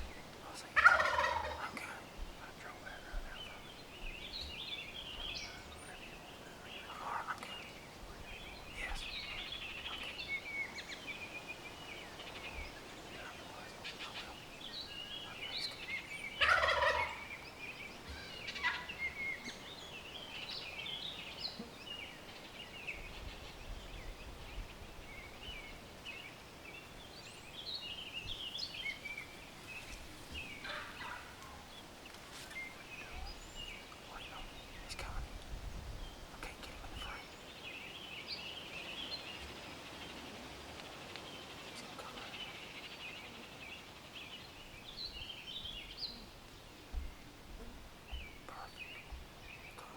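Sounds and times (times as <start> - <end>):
high bird calls: 0.0 - 35.2
turkey gobbling: 0.8 - 1.8, 16.4 - 17.3, 18.6 - 18.9, 30.6 - 31.6.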